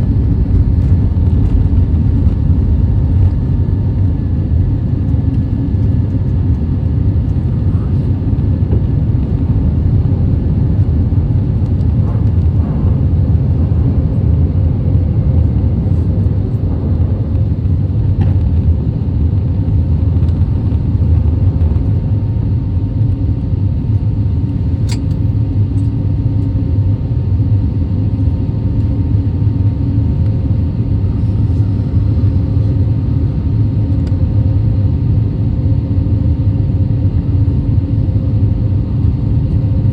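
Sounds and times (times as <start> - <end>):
aircraft cabin engine rumble: 0.0 - 39.9
brief click: 24.9 - 25.2.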